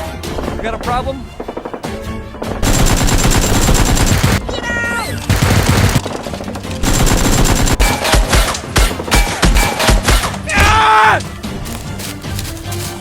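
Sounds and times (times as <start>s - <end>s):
background music: 0.0s - 13.0s
automatic gunfire: 2.6s - 4.4s, 5.3s - 9.5s.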